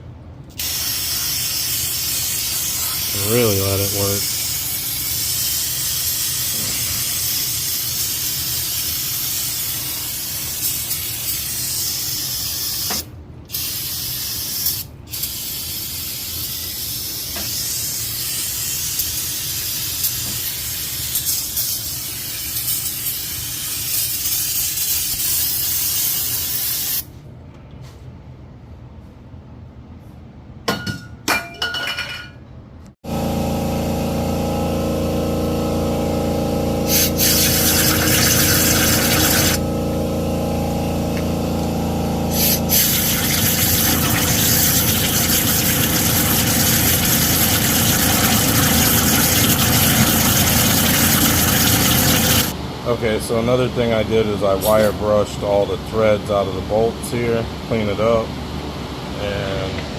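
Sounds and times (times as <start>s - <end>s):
aerosol can spraying: 0.6s - 27.1s, 36.8s - 39.6s, 42.3s - 52.5s.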